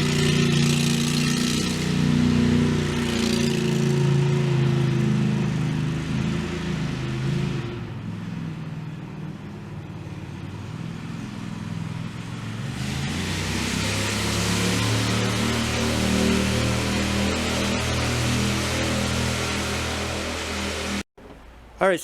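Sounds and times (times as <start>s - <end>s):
tractor engine running under load: 0.0s - 6.5s.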